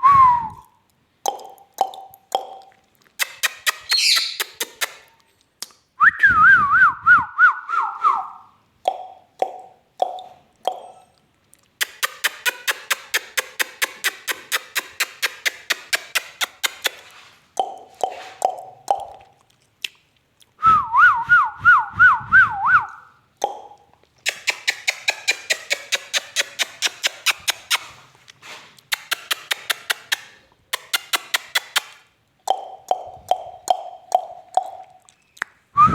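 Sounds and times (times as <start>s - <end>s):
parrot rapid popping clicks: 1.2s - 5.2s, 11.8s - 19.2s, 23.4s - 27.9s, 28.8s - 34.9s
parrot hoots: 3.2s - 5.0s
parrot warbling whistle: 3.7s - 4.5s.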